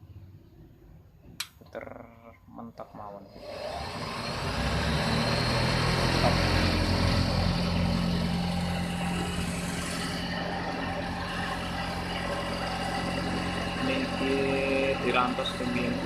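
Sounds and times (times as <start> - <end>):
motor humming: 3.3 - 16.0.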